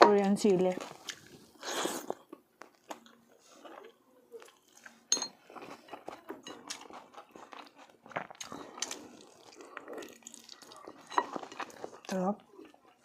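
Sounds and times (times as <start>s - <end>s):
tableware clinking: 5.1s - 6.6s, 11.0s - 11.6s.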